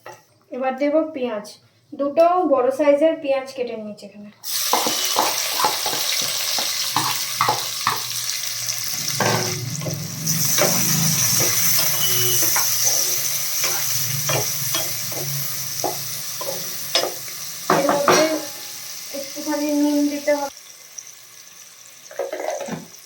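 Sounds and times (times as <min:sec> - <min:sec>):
onions sizzling in hot oil: 0:04.4 - 0:23.0
spatula scraping a pan: 0:09.1 - 0:18.7.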